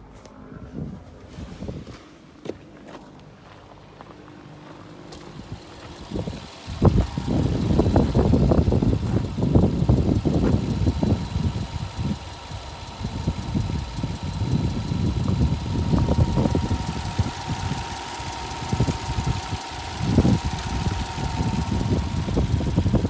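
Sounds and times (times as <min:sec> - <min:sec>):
car engine idling: 0:02.3 - 0:23.0.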